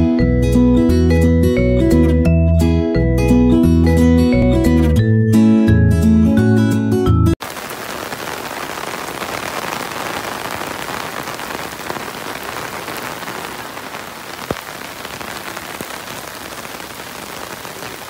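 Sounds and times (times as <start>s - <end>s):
rain falling on pavement: 7.4s - 18.0s.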